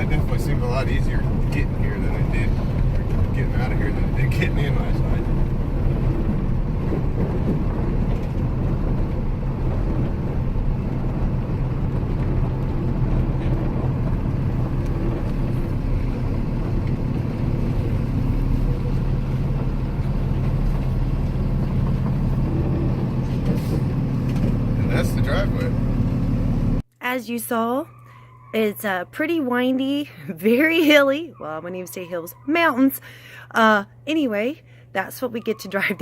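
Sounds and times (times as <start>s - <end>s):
road noise: 0.0s - 26.8s
truck engine drone: 0.0s - 26.8s.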